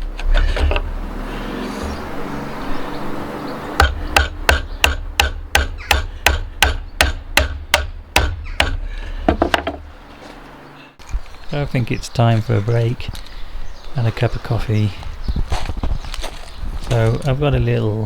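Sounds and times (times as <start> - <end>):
chisel knocks in timber: 3.8 - 9.9.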